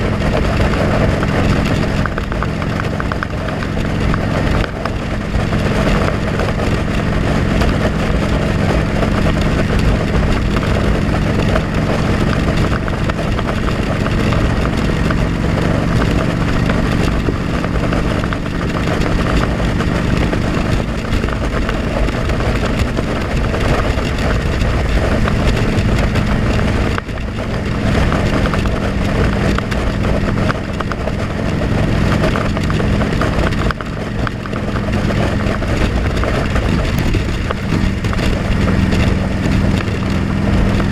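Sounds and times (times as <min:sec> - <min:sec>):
motorcycle engine running: 0:00.0 - 0:40.9
wind noise on microphone: 0:00.0 - 0:40.9.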